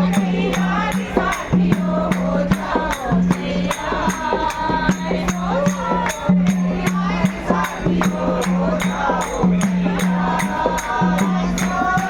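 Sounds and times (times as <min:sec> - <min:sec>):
jingling percussion strikes: 0:00.0 - 0:12.0
voices chanting: 0:00.0 - 0:12.0.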